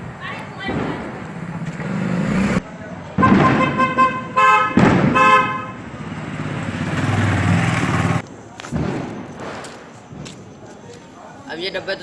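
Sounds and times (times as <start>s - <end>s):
vehicle horn honking: 3.2s - 6.0s.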